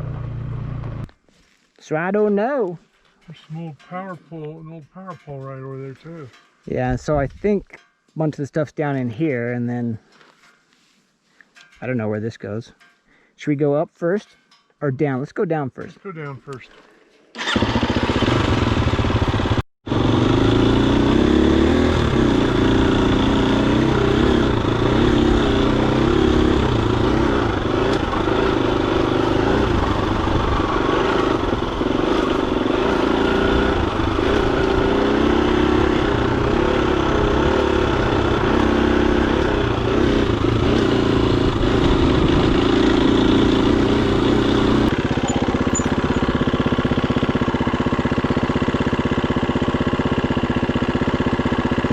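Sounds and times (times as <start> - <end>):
dirt bike engine running: 17.4 - 51.9.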